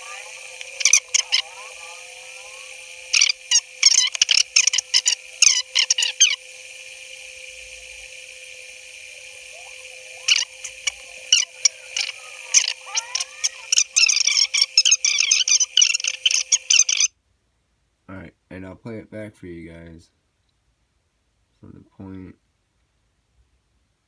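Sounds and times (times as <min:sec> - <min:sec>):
sped-up high-pitched squeaks: 0:00.0 - 0:17.1
steady hum: 0:00.0 - 0:17.1.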